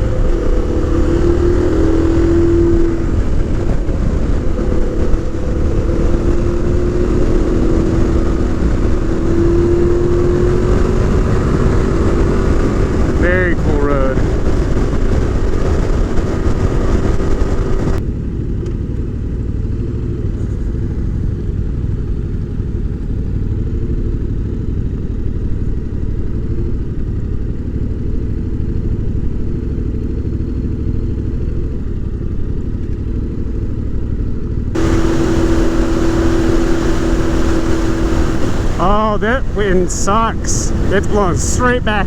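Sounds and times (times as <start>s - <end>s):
wind rumble: 0.0s - 18.0s, 34.8s - 42.0s
motorcycle engine cruising: 0.0s - 42.0s.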